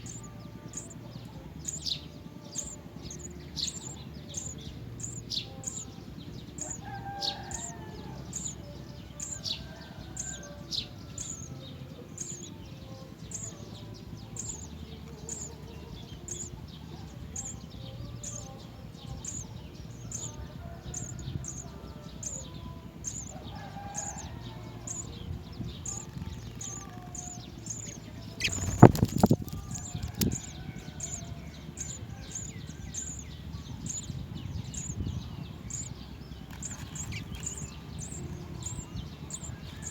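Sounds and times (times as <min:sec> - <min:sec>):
high chirping: 0:00.0 - 0:39.9
wing flapping: 0:25.8 - 0:33.1.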